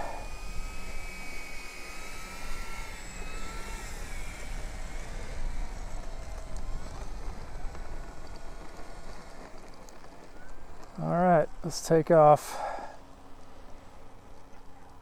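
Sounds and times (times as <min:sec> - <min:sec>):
model plane motor whining: 0:00.0 - 0:11.1
low wind rumble: 0:00.0 - 0:15.0.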